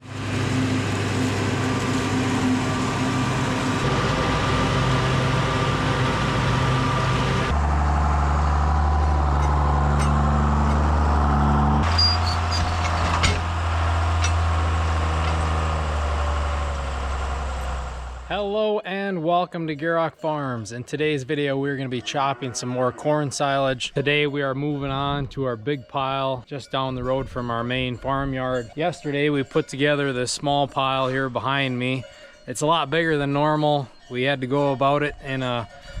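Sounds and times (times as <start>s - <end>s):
heavy machinery engines running: 0.0s - 18.3s.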